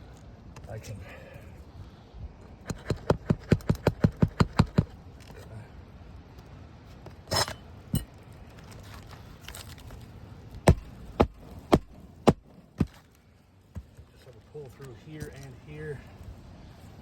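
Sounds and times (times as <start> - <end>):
hammer tapping nails: 2.6 - 4.9.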